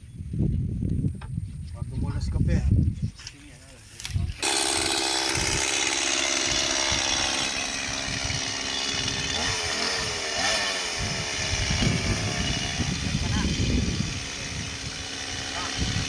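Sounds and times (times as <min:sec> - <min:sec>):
mini chainsaw running: 0:04.4 - 0:16.0.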